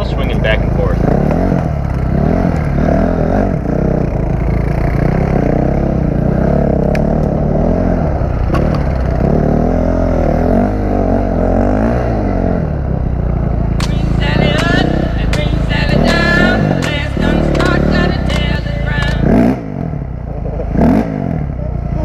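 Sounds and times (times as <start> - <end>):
dirt bike engine revving: 0.0 - 22.0
sharp clicks: 13.8 - 19.4.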